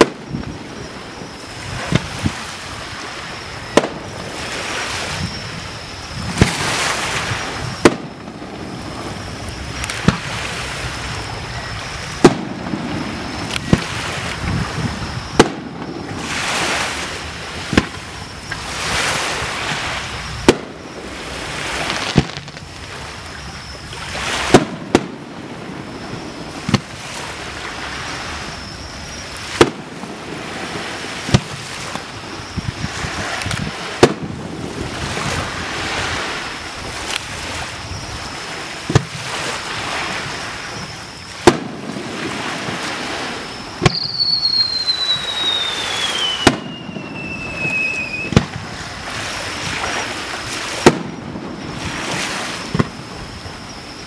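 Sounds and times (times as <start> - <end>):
firework shells bursting: 7.3 - 10.3, 12.2 - 14.6, 15.3 - 16.3, 20.4 - 23.0, 24.5 - 25.3, 41.4 - 42.9, 43.8 - 48.7, 50.8 - 53.1
rushing hiss: 39.1 - 54.0.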